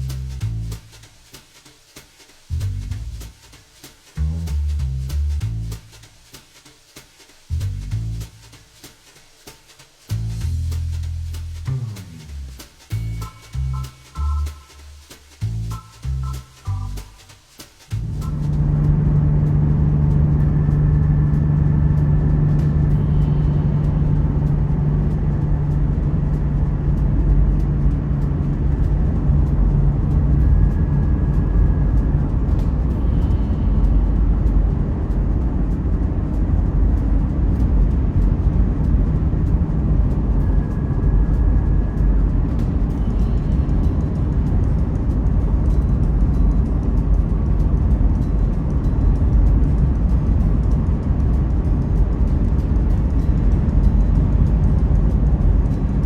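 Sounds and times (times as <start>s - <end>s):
wind rush: 7.2s - 56.0s
motorcycle engine drone: 17.9s - 56.0s.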